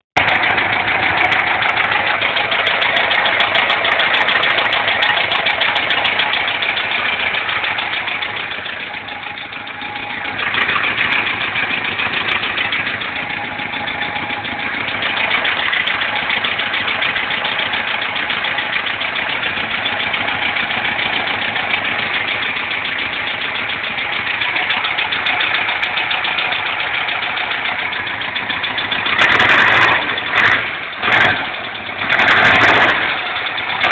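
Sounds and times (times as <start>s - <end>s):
car engine idling: 0.2s - 33.9s
engine knocking: 0.2s - 33.9s
engine whistle: 6.9s - 17.9s.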